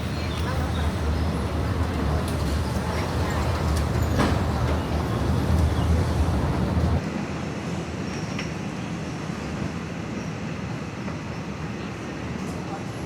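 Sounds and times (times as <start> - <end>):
vehicle rumbling in motion: 0.0 - 7.0
steady background noise: 0.0 - 13.0.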